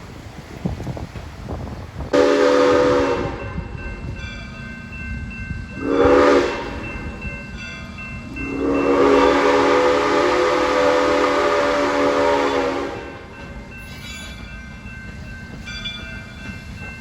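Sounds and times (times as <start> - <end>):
train rumbling on rails: 0.0 - 17.0
locomotive horn chime: 2.2 - 4.5, 5.2 - 14.6.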